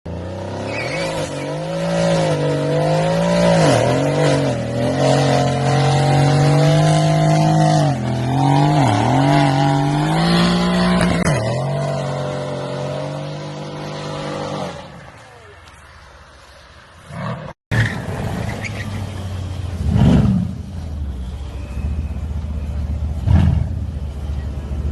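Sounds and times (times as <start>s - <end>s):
car engine at high revs: 0.1s - 15.0s.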